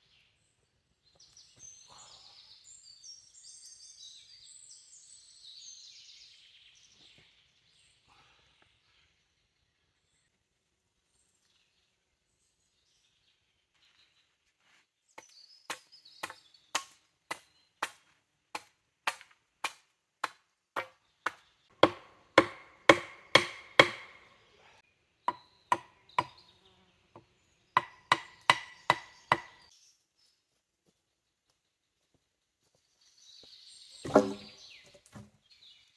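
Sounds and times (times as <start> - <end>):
axe chopping wood: 15.7 - 24.4, 25.3 - 26.4, 27.8 - 29.7, 34.1 - 35.3.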